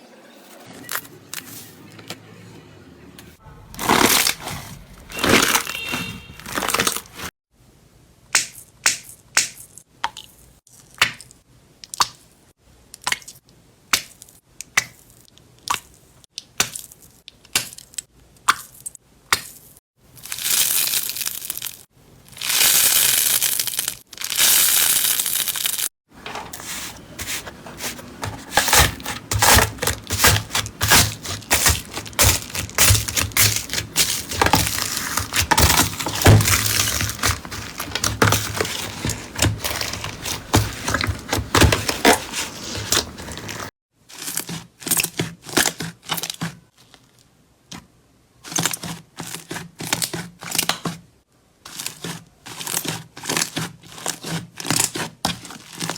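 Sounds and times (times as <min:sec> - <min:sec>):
slime crackling and popping: 0:22.4 - 0:25.9, 0:29.4 - 0:38.9.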